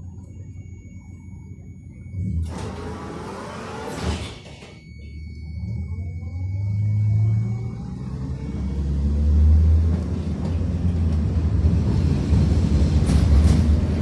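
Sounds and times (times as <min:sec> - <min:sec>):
tram rumbling: 0:04.8 - 0:14.0.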